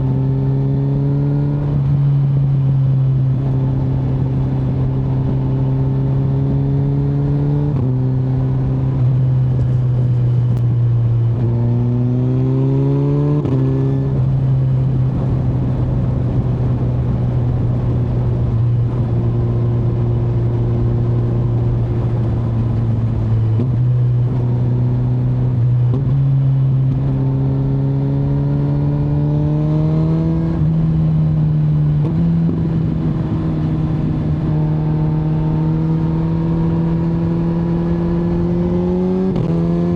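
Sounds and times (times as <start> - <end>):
motorcycle engine changing gears: 17.0 - 39.9.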